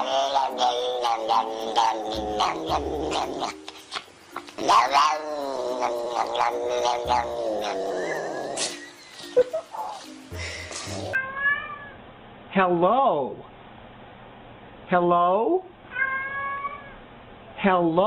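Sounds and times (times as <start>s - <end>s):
cat mumbling and yowling: 0.0s - 8.7s, 10.9s - 12.0s, 15.9s - 17.0s.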